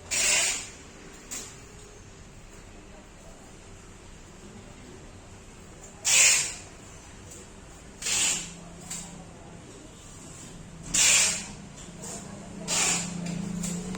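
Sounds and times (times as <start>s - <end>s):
short hissing bursts: 0.1s - 0.8s, 6.0s - 6.7s, 8.0s - 8.5s, 10.9s - 11.6s, 12.7s - 13.1s.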